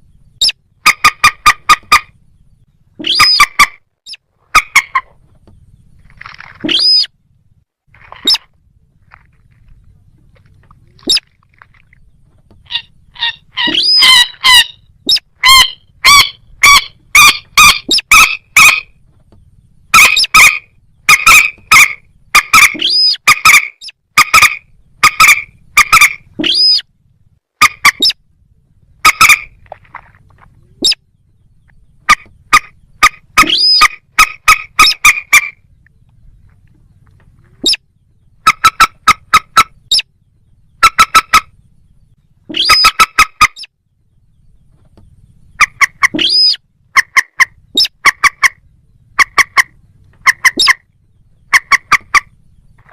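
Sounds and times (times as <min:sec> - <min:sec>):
sharp bird calls: 0:00.0 - 0:07.2, 0:08.0 - 0:26.9, 0:27.6 - 0:28.2, 0:28.8 - 0:52.9.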